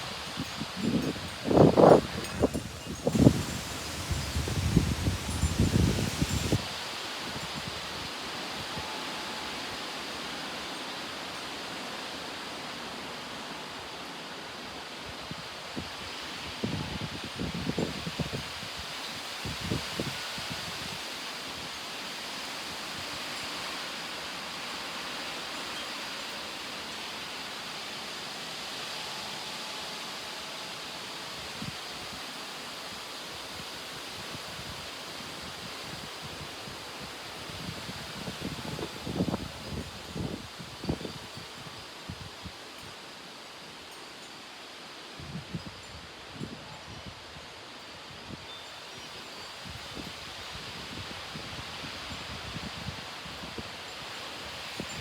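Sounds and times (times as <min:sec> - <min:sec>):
wind rushing through trees: 0:00.0 - 0:55.0
strong wind rushing: 0:00.5 - 0:06.6.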